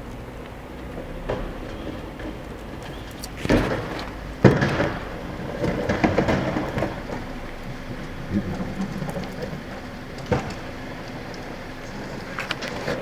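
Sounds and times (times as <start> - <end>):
garbage truck engine running: 0.0 - 13.0
trash and cans thumping and clattering: 2.9 - 7.2.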